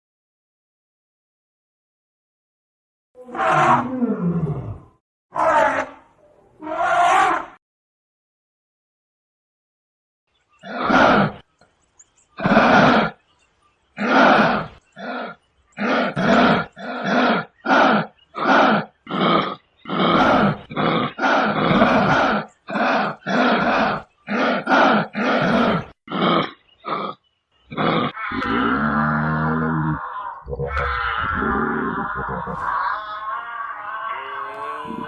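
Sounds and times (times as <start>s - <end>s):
animal roar-like grunts: 10.6s - 11.4s, 12.4s - 13.2s, 14.0s - 35.0s
animal steady pitched call: 14.0s - 35.0s.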